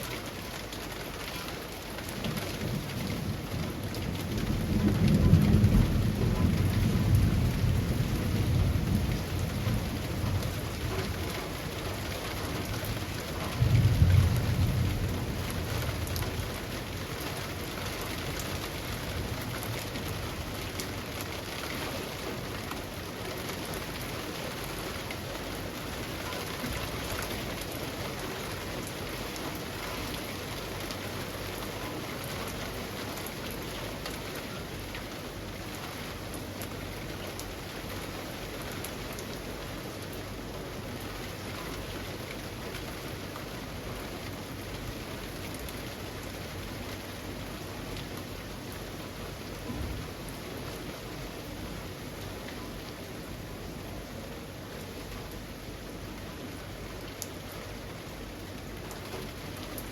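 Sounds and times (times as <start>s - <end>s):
rain falling through trees: 0.0s - 59.9s
thunder rumbling: 2.2s - 20.8s.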